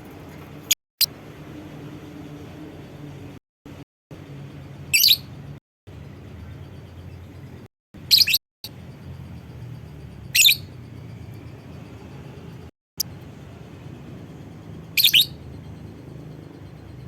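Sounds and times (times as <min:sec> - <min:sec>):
low steady hum: 0:00.0 - 0:17.0
bird shrill calls: 0:04.9 - 0:05.3, 0:08.1 - 0:08.4, 0:10.3 - 0:10.8, 0:14.9 - 0:15.4.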